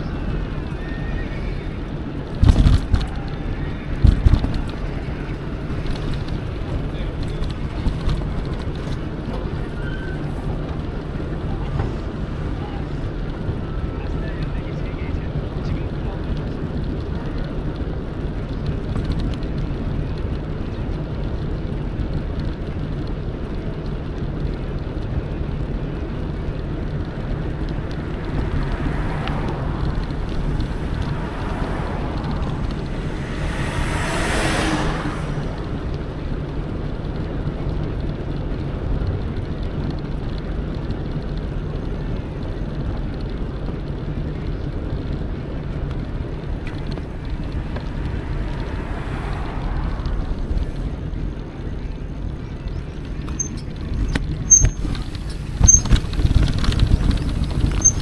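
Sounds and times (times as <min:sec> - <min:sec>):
wind on microphone: 0:00.0 - 0:13.8, 0:25.0 - 0:39.3, 0:44.7 - 0:58.0
bike tyre noise: 0:00.0 - 0:58.0.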